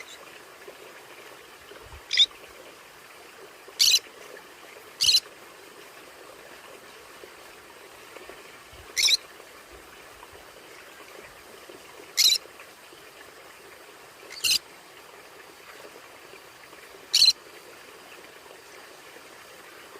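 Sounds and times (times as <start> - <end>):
faint steady hiss: 0.0 - 19.9
conure high-pitched calls: 2.1 - 2.3, 3.8 - 4.0, 5.0 - 5.2, 9.0 - 9.2, 12.2 - 12.4, 14.3 - 14.6, 17.1 - 17.4.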